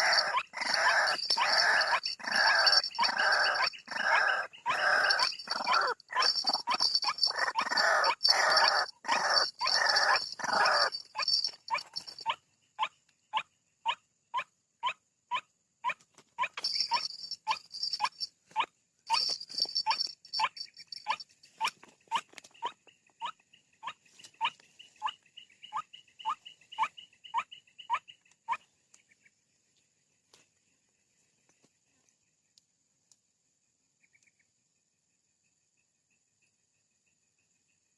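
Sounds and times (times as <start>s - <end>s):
waterhen calls: 0.0s - 12.3s.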